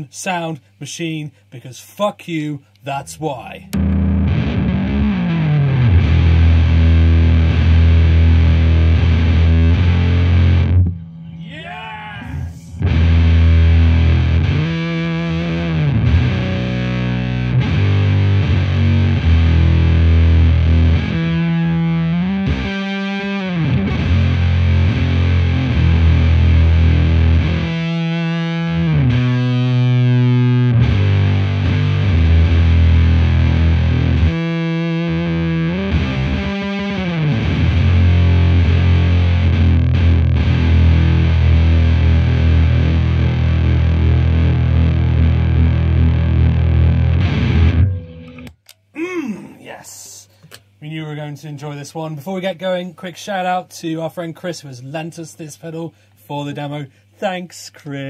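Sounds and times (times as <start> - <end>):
fuzz electric guitar riff: 3.6 - 49.5.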